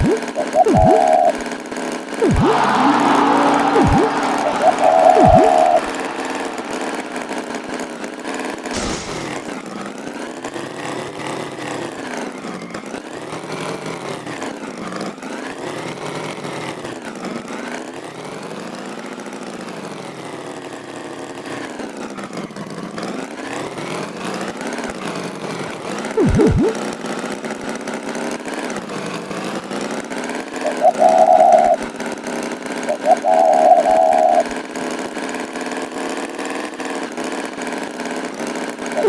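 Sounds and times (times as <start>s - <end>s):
short noisy burst: 2.2s - 7.9s, 8.7s - 9.6s
tractor engine revving: 2.2s - 7.9s.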